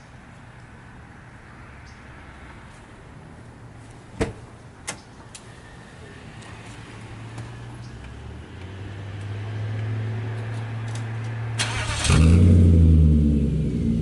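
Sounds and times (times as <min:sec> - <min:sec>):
car engine starting: 0:11.5 - 0:14.0.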